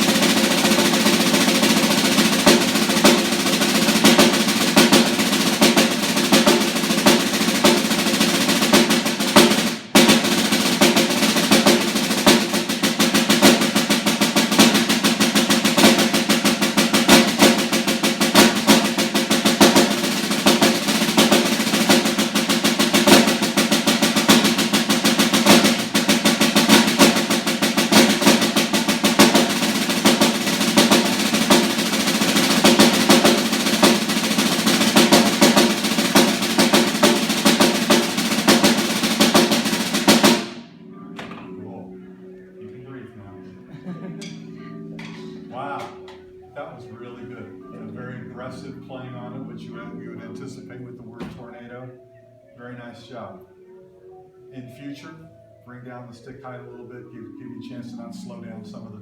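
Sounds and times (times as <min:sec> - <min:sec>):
snare drum rolls: 0:00.0 - 0:41.3.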